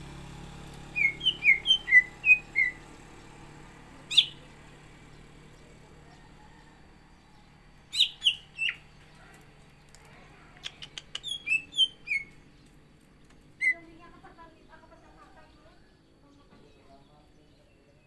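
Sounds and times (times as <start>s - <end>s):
bird whistling song: 0.9s - 2.9s, 4.0s - 4.5s, 7.9s - 9.0s, 10.6s - 12.4s, 13.5s - 13.9s
bird clicks: 9.3s - 11.6s.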